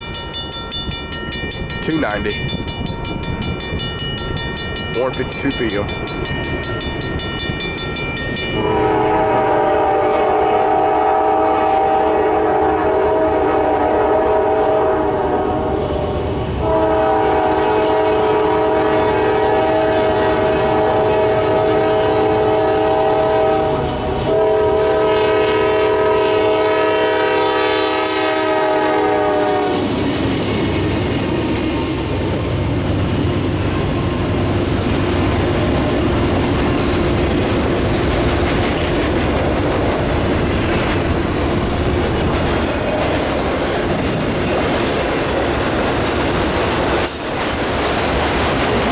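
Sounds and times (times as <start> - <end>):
freight train rumbling by: 0.0 - 48.9
locomotive air horn blasts: 8.6 - 29.9
wheels clicking over rail joints: 32.9 - 48.9.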